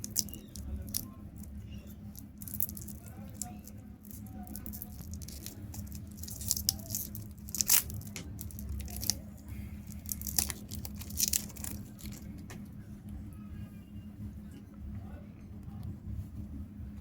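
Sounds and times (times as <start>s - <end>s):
wrapper tearing and crinkling: 0.0s - 1.5s, 2.1s - 9.2s, 9.8s - 12.5s
steady low hum: 0.0s - 17.0s.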